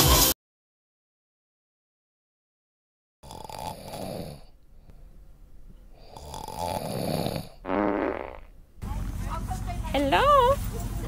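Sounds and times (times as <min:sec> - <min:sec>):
pig snoring: 0:03.2 - 0:04.6, 0:06.0 - 0:08.5.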